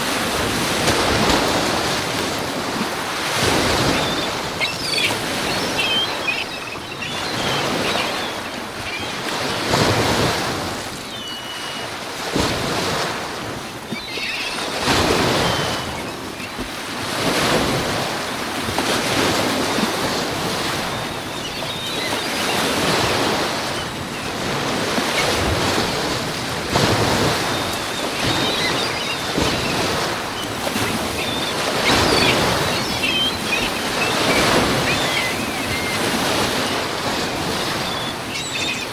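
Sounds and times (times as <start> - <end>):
waves breaking on shore: 0.0 - 38.9.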